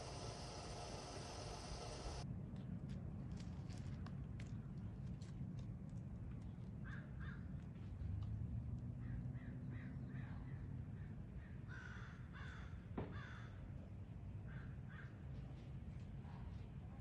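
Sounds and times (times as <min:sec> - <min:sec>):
bird calling: 0:00.0 - 0:02.2.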